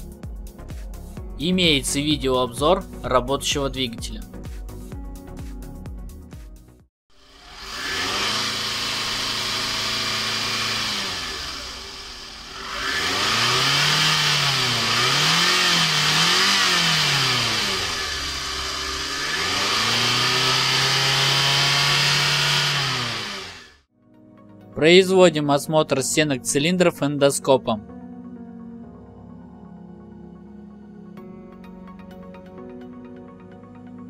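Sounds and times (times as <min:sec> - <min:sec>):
car engine revving: 0:07.2 - 0:23.8.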